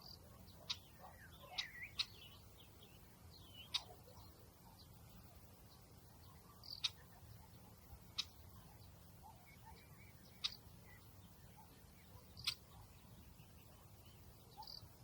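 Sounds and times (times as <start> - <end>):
bird chip calls: 0.0 - 5.0, 6.2 - 15.0
faint low outdoor rumble: 0.0 - 15.0.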